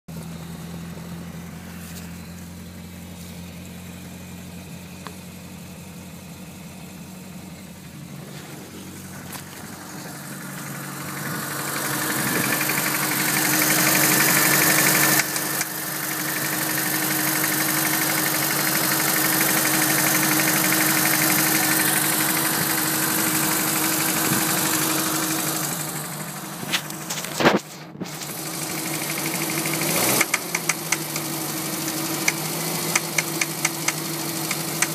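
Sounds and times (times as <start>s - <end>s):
car engine knocking: 6.6s - 34.9s
sharp clacks: 30.2s - 31.2s.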